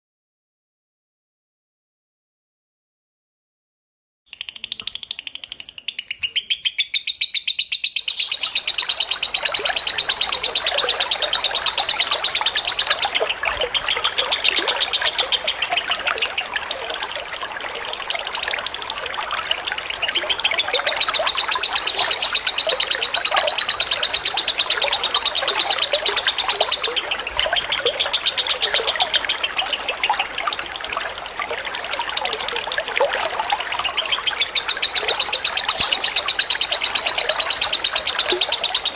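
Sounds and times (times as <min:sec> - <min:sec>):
lovebird chattering song: 0:04.3 - 0:38.9
trickling water: 0:07.9 - 0:38.9.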